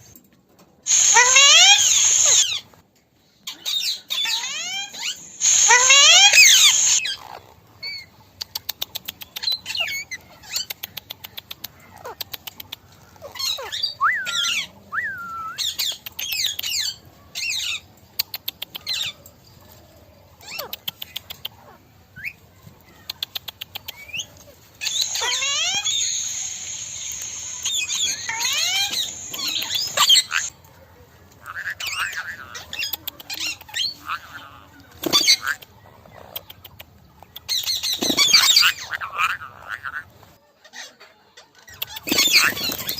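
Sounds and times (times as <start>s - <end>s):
parrots squawking: 0.9s - 2.6s, 4.1s - 7.4s, 24.8s - 30.5s, 31.4s - 32.8s, 37.6s - 40.1s.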